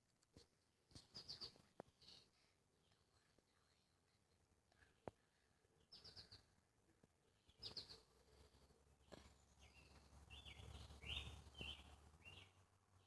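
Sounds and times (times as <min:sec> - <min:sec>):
bird chirps: 0:05.9 - 0:06.5, 0:07.4 - 0:08.1, 0:09.5 - 0:12.6.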